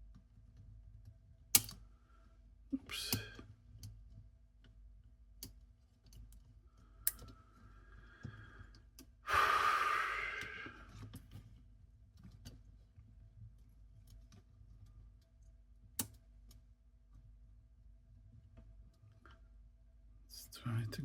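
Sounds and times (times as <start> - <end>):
small mechanism parts clicking: 1.5 - 1.8
person sighing: 2.8 - 3.4, 9.3 - 10.8.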